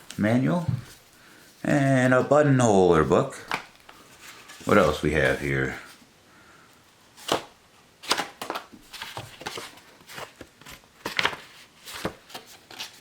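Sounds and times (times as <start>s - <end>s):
paper rustling: 3.4s - 6.0s, 7.2s - 13.0s.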